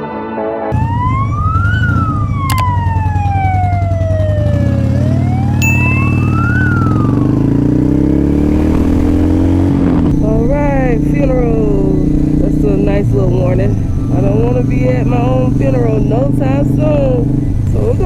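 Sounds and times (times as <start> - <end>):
emergency siren wailing: 0.7 - 9.4
motorcycle engine accelerating: 0.8 - 18.0
short high beep: 5.6 - 7.3.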